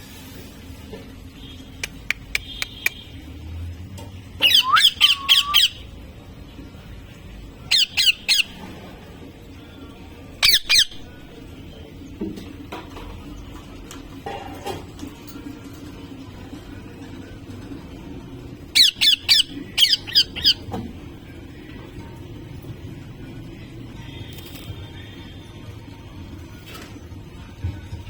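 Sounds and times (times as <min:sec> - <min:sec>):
sharp clicks: 0:01.8 - 0:02.8
parrot shrill calls: 0:04.4 - 0:05.9, 0:07.7 - 0:08.6, 0:10.4 - 0:11.0, 0:18.8 - 0:20.7.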